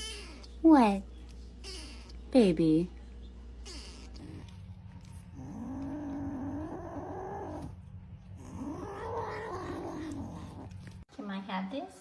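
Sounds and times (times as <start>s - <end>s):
cat yowling: 8.4s - 10.7s.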